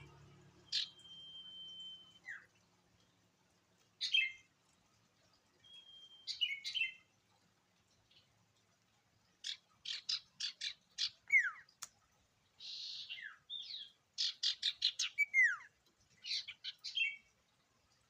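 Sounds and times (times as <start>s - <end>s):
downward sliding whistles: 0.7s - 2.3s.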